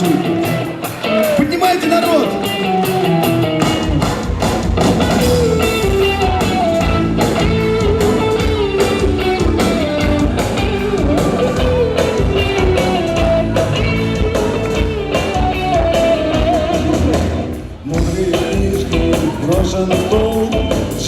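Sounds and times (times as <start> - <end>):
bass guitar: 0.0 - 21.0
drums: 0.0 - 21.0
guitar melody over chords: 5.1 - 21.0.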